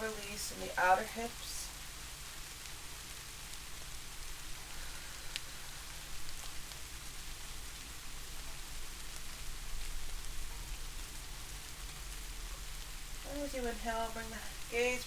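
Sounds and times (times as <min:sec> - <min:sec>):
steady rain: 0:00.0 - 0:15.0
faint drip ticks: 0:04.7 - 0:05.6.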